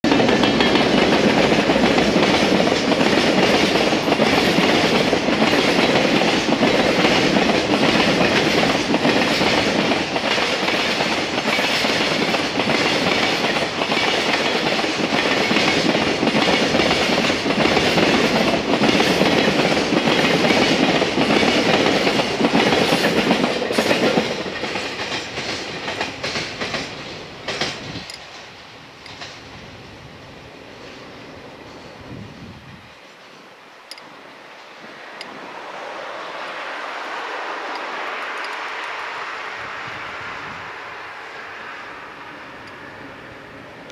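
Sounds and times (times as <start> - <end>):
train wheels clattering over rail joints: 0.1 - 29.6, 37.7 - 39.1.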